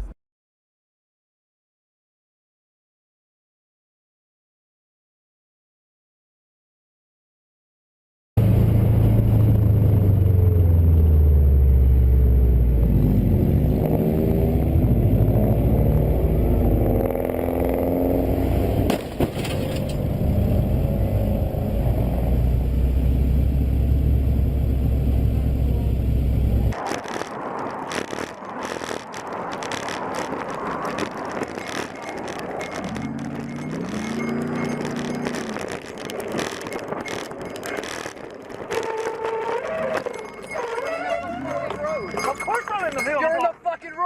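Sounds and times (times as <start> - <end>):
vehicle engine and road noise: 8.4 - 44.0
hissing crackling noise: 26.7 - 40.5.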